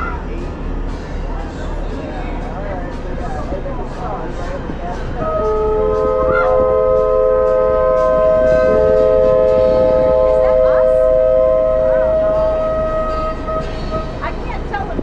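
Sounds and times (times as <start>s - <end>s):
locomotive horn chord: 5.0s - 14.9s.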